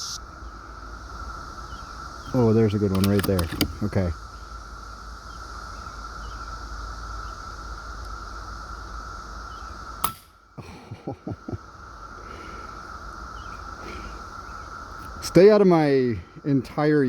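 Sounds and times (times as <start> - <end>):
cicadas chorus: 0.0 - 17.0
quick clicks: 2.3 - 4.1
air rifle shot: 10.0 - 10.4.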